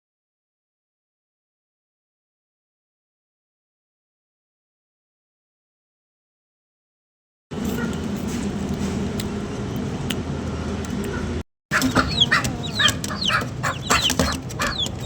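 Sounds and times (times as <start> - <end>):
steady low hum: 7.5 - 15.0
chickens clucking and chirping: 7.6 - 15.0.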